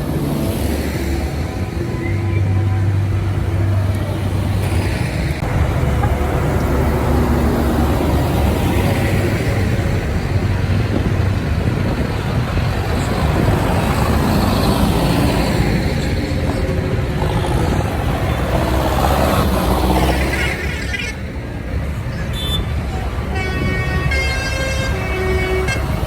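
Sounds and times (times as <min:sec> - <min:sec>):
tractor diesel engines rumbling: 0:00.0 - 0:26.0.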